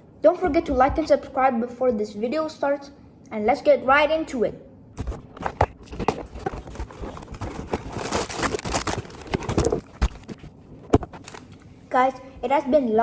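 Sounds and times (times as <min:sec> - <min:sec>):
cardboard box clicks and rustling: 0:05.0 - 0:10.4.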